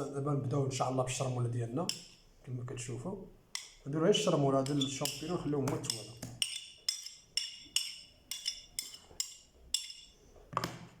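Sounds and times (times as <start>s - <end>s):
utensil clinking against bowl: 1.9s - 2.2s, 4.6s - 10.2s.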